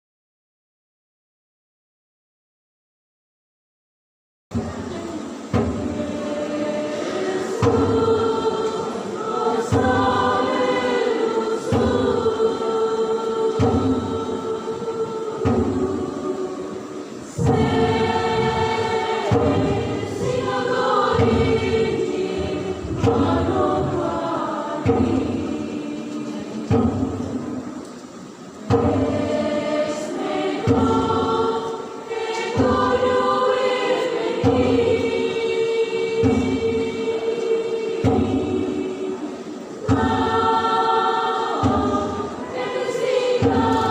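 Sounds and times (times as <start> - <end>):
deep accented beat: 4.5 - 31.8
choir singing a hymn: 4.6 - 43.9.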